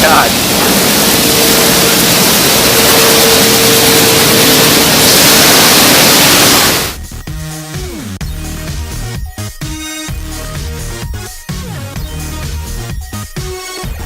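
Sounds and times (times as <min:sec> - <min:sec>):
car wash spraying water: 0:00.0 - 0:07.0
electronic music: 0:00.0 - 0:14.0.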